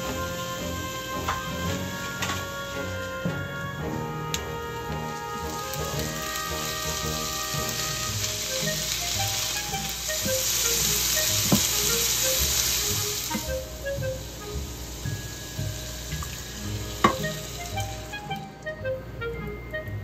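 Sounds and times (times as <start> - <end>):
meat sizzling in a frying pan: 0.0 - 2.9, 5.3 - 18.4
light background music: 0.0 - 20.0
spatula knocking a pan: 17.0 - 17.4.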